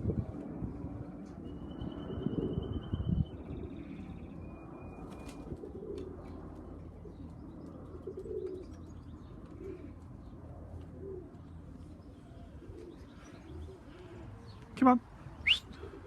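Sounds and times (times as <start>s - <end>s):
pigeons cooing: 5.0s - 16.0s.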